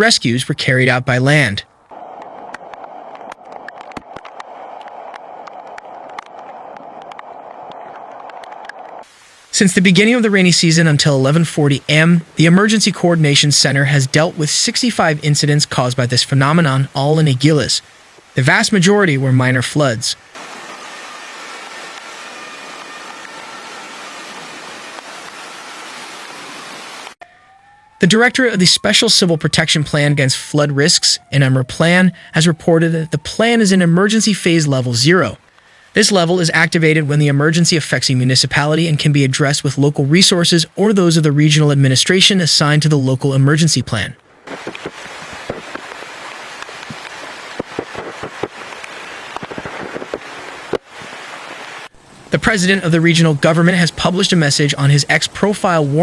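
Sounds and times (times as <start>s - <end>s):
torrential rain: 1.8s - 27.2s, 34.2s - 42.8s, 44.2s - 56.0s
floodwater running: 8.3s - 28.0s, 44.4s - 56.0s.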